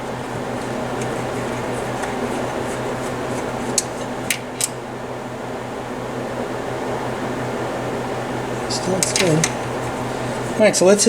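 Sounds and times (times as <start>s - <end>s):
room heater fan noise: 0.0s - 11.0s.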